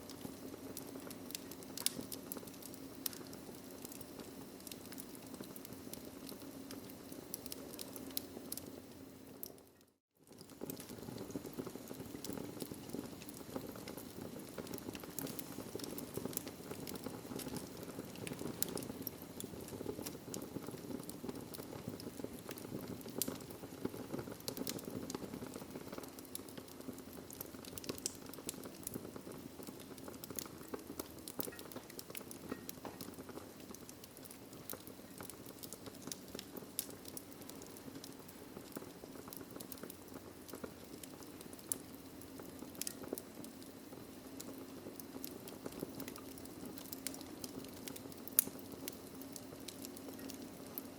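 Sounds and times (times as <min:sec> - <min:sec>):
low hiss of burning logs: 0:00.0 - 0:50.9
wood fire crackling and popping: 0:00.0 - 0:50.9.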